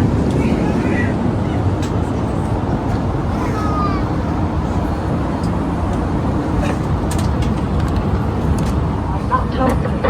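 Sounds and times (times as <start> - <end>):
airplane cabin rumble: 0.0 - 10.0.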